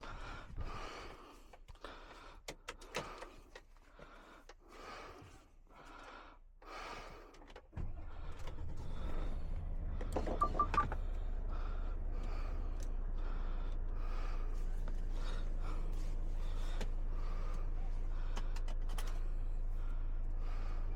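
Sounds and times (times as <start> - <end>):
diesel engine idling: 7.8 - 20.9
dashboard beeps: 10.3 - 11.0.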